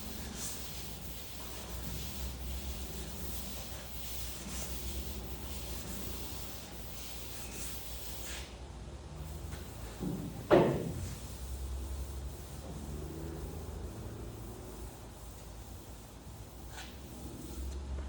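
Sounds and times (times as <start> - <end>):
steady low hum: 0.0 - 8.0
faint rubbing strokes: 0.0 - 8.5, 10.9 - 17.8
loud knock: 10.0 - 11.0.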